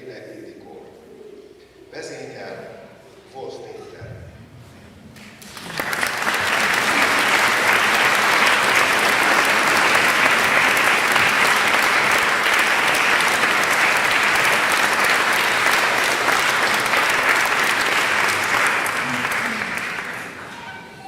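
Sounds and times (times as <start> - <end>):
audience applauding: 5.2 - 21.0.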